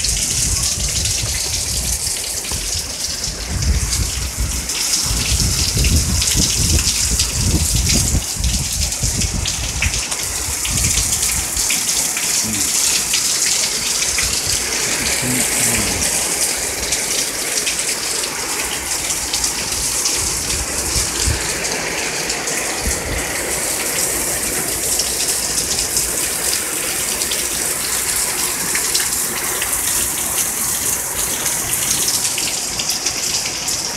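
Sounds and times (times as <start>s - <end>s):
heavy rain on pavement and cars: 0.0s - 33.9s.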